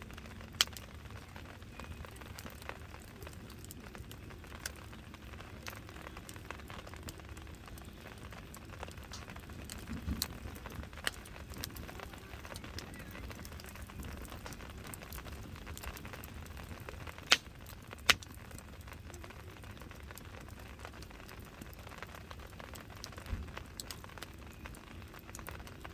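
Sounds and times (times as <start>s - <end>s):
wood fire crackling: 0.0s - 25.9s.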